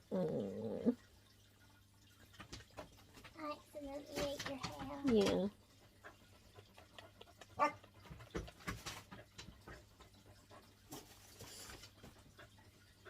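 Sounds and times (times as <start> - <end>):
dog whining: 0.0 - 1.0.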